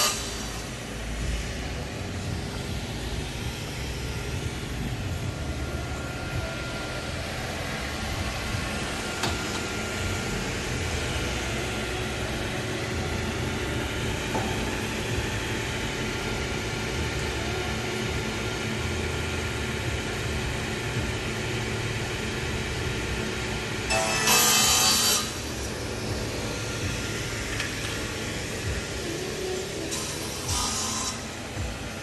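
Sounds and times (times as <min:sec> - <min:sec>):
table saw blade whirring: 0:23.8 - 0:25.9, 0:29.6 - 0:31.6.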